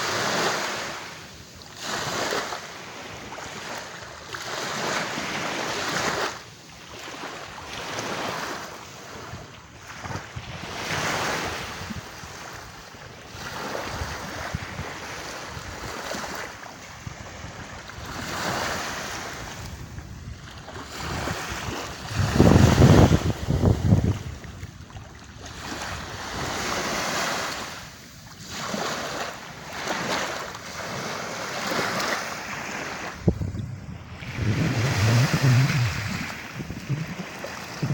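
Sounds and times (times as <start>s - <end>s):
sea waves washing onto beach: 0.0s - 37.9s
wind buffeting microphone: 19.2s - 25.0s, 33.0s - 37.9s.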